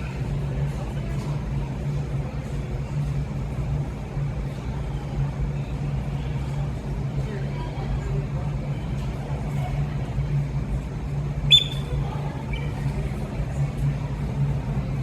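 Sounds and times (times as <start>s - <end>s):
low droning hum: 0.0s - 15.0s
bird call: 11.5s - 11.9s.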